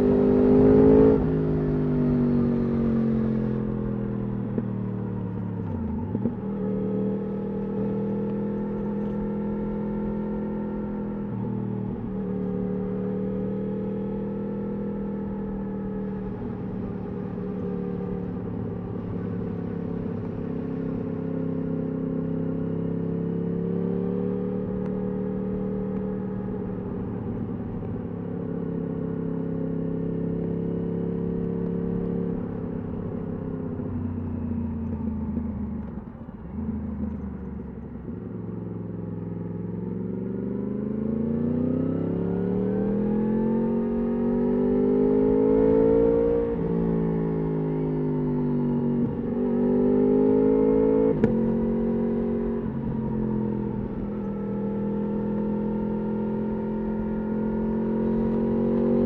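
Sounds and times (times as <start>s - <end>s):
motorcycle engine revving: 0.0s - 27.4s, 28.3s - 59.0s.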